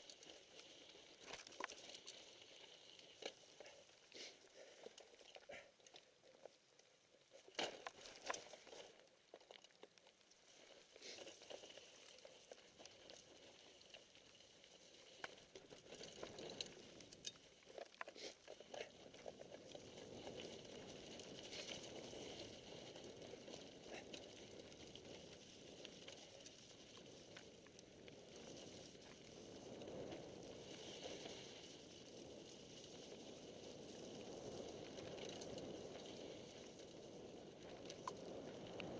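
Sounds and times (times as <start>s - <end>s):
bike clicks and rattles: 0.0s - 38.9s
tyres hissing on wet ground: 4.1s - 4.6s.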